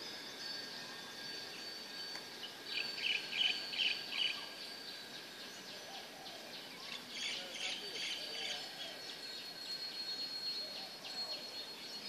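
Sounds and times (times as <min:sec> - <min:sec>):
outdoor background noise: 0:00.0 - 0:12.0
songbird calling: 0:00.4 - 0:12.0
faint high-pitched tone: 0:06.7 - 0:12.0.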